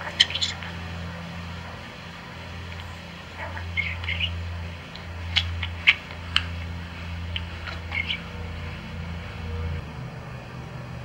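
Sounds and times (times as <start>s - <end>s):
budgerigar chirping: 0.0s - 0.9s, 2.6s - 8.6s
steady low hum: 0.0s - 11.0s
sharp bird clicks: 3.7s - 6.6s, 7.3s - 8.3s.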